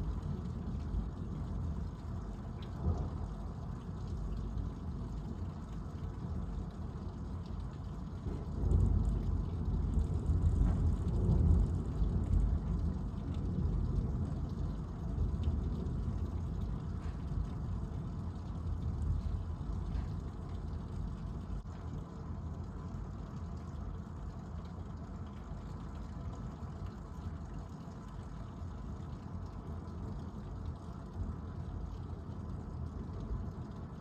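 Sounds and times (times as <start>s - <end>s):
thunder rumbling: 2.4s - 3.8s, 8.2s - 21.5s.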